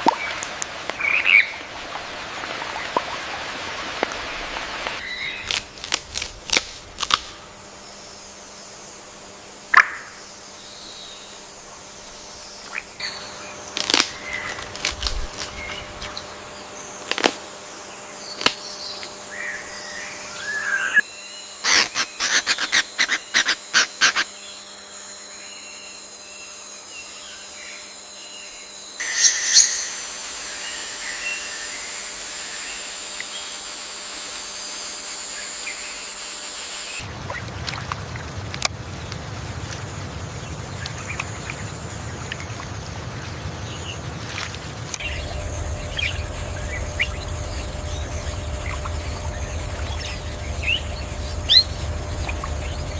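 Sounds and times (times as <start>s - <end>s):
high insect drone: 0.0s - 52.9s
bird calls and chirps: 18.4s - 24.6s, 29.0s - 32.1s, 45.0s - 52.9s
sharp clicking calls: 21.6s - 24.3s
low rushing noise: 45.0s - 52.9s.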